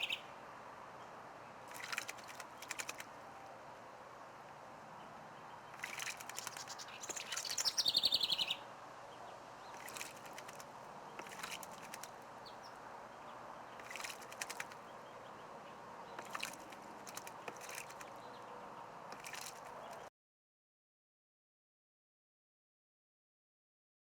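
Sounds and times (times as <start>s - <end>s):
faint bird chirps: 0.0s - 0.3s, 5.7s - 8.6s
sharp clicks or splashes: 1.7s - 3.2s, 5.8s - 7.8s, 9.7s - 12.2s, 13.8s - 14.9s, 16.2s - 18.2s, 19.1s - 20.1s.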